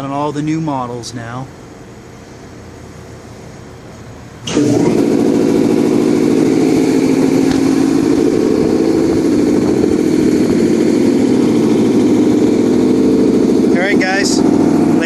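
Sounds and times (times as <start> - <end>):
car engine starting and running: 4.2 - 15.0.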